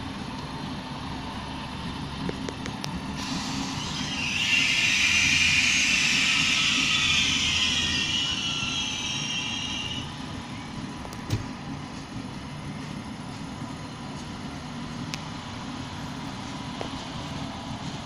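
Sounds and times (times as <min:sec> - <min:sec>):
train rumbling: 0:00.0 - 0:18.0
wheels screeching on rails: 0:03.1 - 0:11.0.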